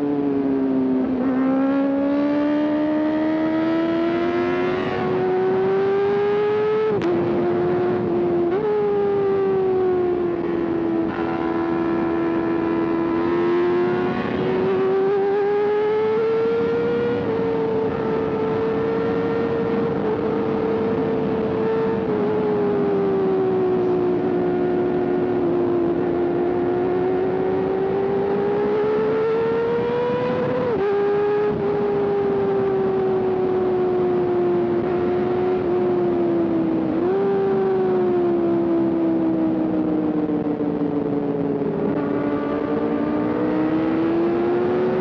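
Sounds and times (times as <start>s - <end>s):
motorcycle engine at high revs: 0.0s - 45.0s
wind rush: 4.6s - 24.4s.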